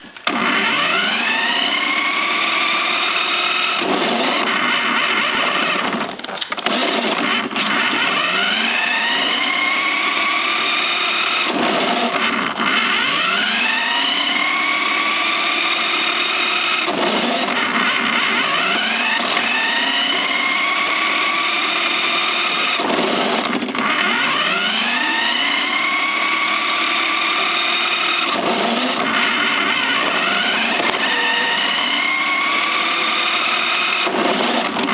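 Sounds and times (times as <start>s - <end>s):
motor whine speeding up: 0.0s - 34.9s.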